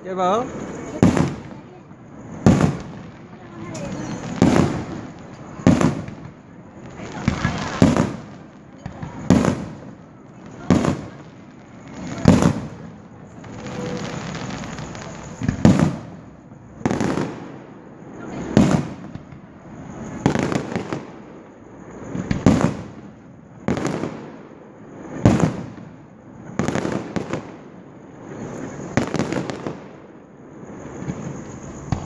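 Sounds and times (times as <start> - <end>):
firework shells bursting: 0.4 - 17.6, 30.7 - 32.0.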